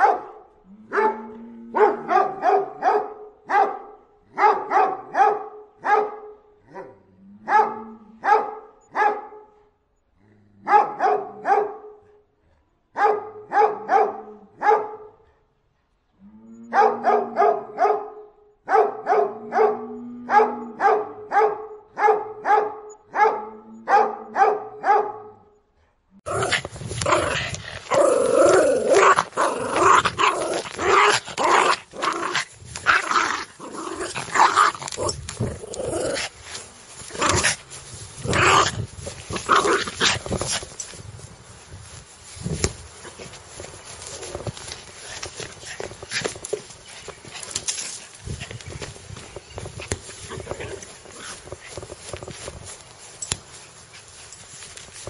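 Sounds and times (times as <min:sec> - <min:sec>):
small dog barking rapidly: 0:01.8 - 0:06.9, 0:07.5 - 0:09.4, 0:10.7 - 0:11.8, 0:13.0 - 0:15.0, 0:16.8 - 0:25.4
dog barking sharply: 0:20.4 - 0:25.4
dog growling low: 0:26.2 - 0:32.4.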